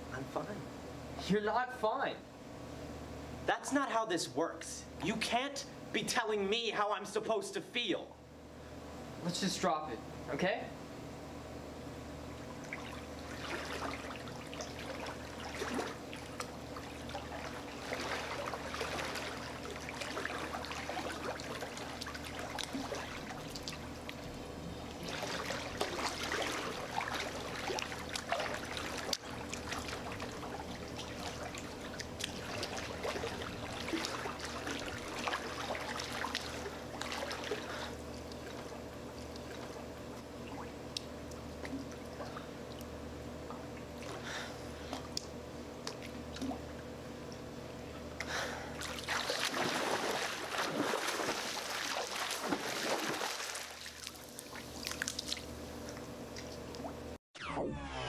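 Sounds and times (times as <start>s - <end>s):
steady low hum: 0.0s - 57.9s
pool water splashing: 12.2s - 47.0s, 48.2s - 57.1s.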